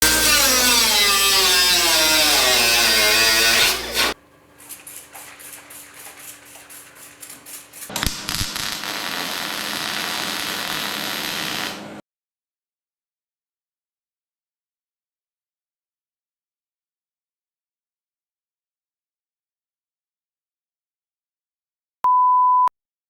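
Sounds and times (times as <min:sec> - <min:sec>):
power tool winding down: 0:00.0 - 0:04.2, 0:06.2 - 0:12.0.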